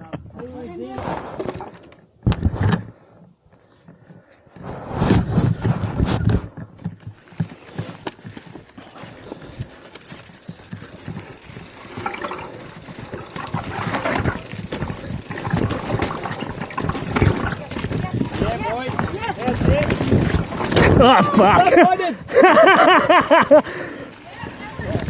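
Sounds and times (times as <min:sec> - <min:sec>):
bike clattering over rocks: 0:08.7 - 0:22.0.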